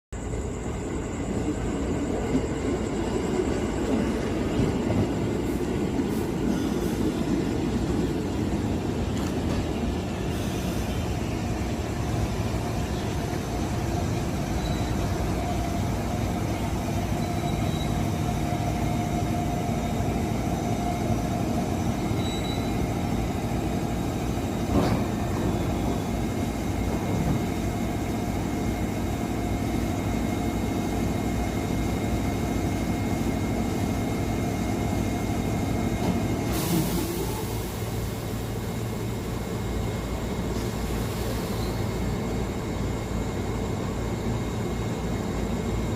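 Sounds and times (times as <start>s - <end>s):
train wheels rumbling on rails: 0.3s - 45.9s.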